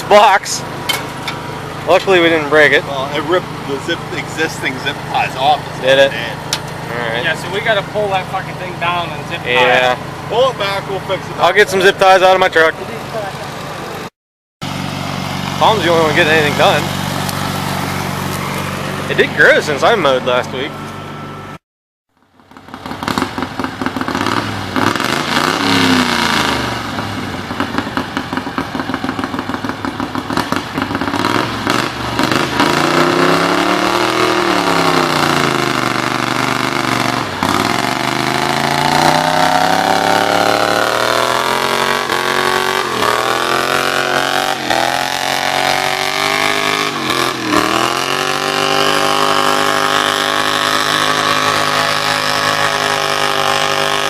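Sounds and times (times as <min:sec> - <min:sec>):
tractor engine running hard: 0:00.0 - 0:21.6, 0:22.2 - 0:54.0.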